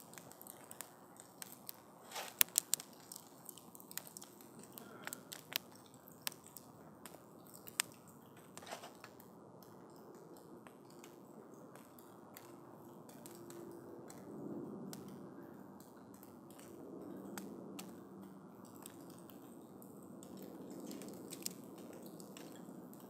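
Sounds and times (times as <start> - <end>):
campfire crackling and popping: 0.0 - 23.0
low rustle of flame: 0.0 - 23.0.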